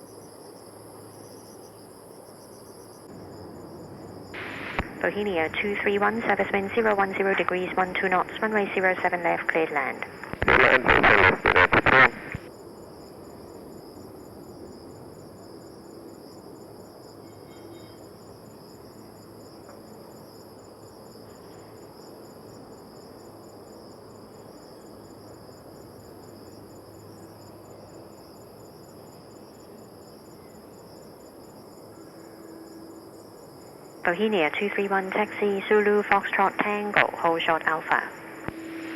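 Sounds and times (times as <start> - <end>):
faint background rumble: 3.1 - 12.4
high-pitched insect chorus: 12.6 - 34.0, 38.0 - 38.9.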